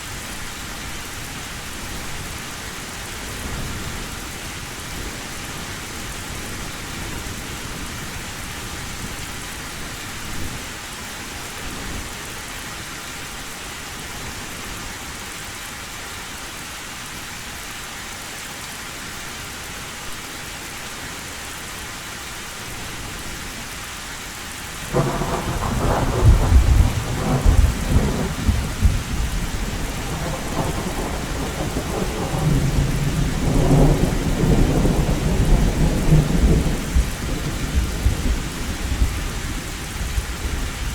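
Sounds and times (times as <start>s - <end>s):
heavy rain on a tin roof: 0.0s - 40.9s
thunder rumbling: 24.9s - 40.9s.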